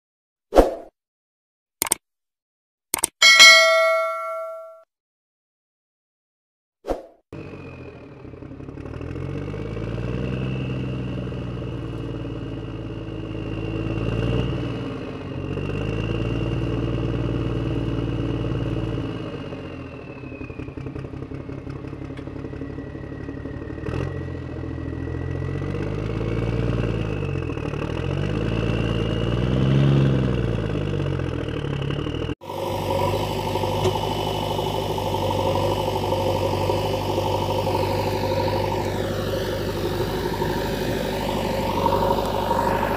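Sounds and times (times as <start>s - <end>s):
vehicle engine revving: 7.4s - 19.8s, 23.7s - 42.9s.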